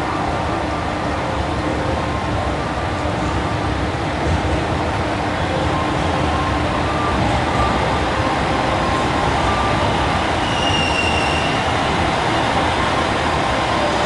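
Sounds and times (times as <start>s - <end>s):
diesel train rumbling: 0.0s - 14.0s
high-pitched wheel squeal: 9.7s - 11.8s.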